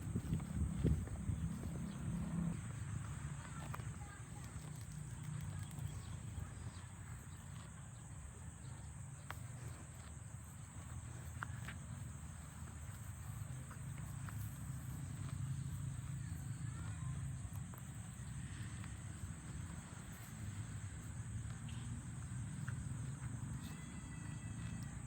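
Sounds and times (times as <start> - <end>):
low rumble: 0.0 - 2.8.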